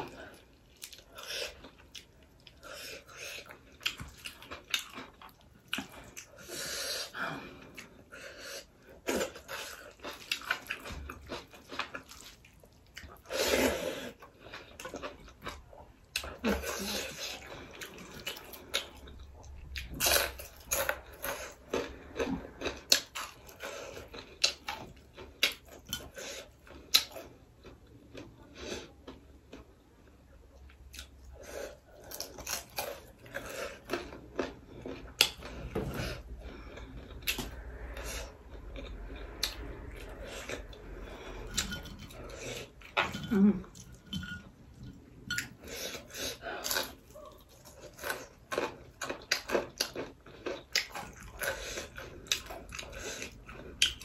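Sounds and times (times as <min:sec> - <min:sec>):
crunching fried food: 0:46.5 - 0:54.0.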